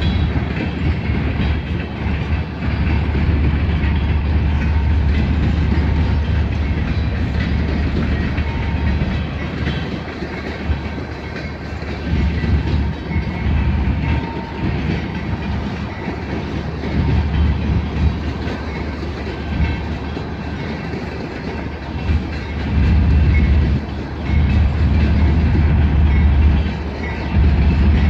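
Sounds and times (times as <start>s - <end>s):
diesel locomotive rumble: 0.0s - 28.0s
train wheels clicking over rail joints: 0.0s - 28.0s.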